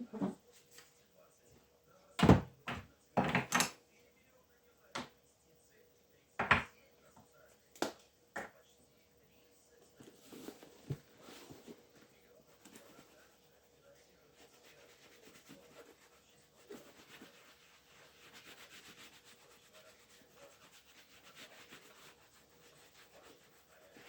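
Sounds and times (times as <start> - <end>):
rubbing strokes on a shoe: 14.3 - 24.0.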